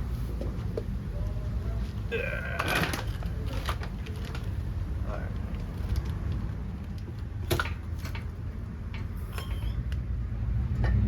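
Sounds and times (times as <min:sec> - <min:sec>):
metal tools clinking: 0:07.5 - 0:09.9.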